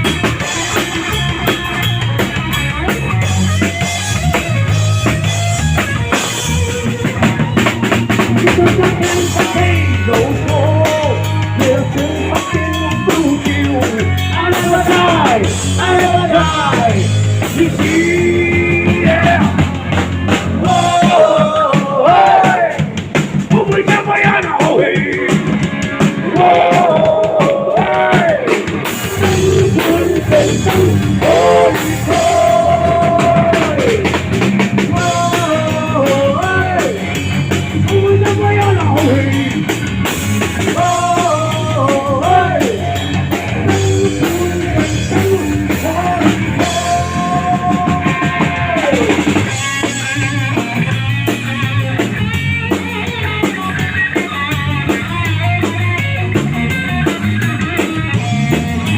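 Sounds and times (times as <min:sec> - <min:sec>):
rock band playing: 0:00.0 - 0:58.9
person singing: 0:08.2 - 0:22.9, 0:26.2 - 0:34.2, 0:34.8 - 0:39.8, 0:40.6 - 0:50.8.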